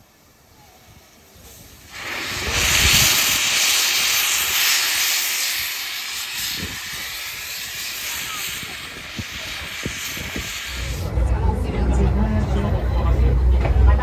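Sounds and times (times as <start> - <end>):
steam locomotive hissing steam: 0.0 - 14.0.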